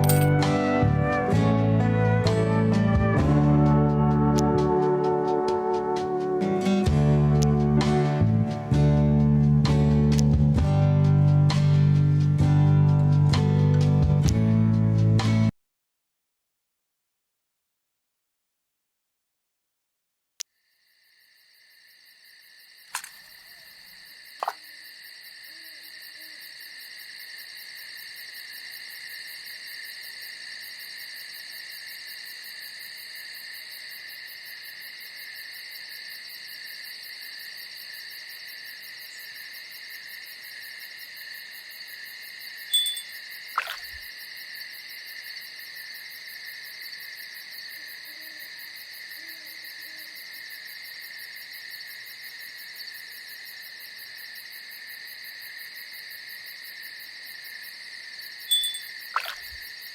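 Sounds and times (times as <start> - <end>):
crickets chirping: 0.0 - 0.4, 20.5 - 59.9
sharp clicks: 22.9 - 23.3.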